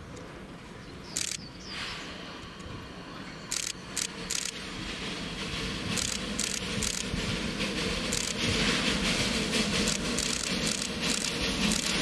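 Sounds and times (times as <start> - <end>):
train rumble: 0.0 - 12.0
short sharp hiss bursts: 3.5 - 12.0.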